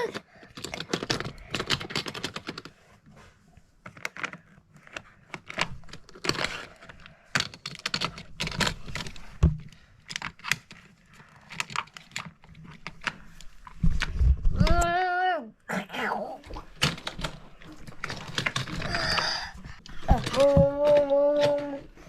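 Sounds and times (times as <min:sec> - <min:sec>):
toy cars and track clattering: 0:00.0 - 0:02.8, 0:05.3 - 0:09.3, 0:16.8 - 0:22.0.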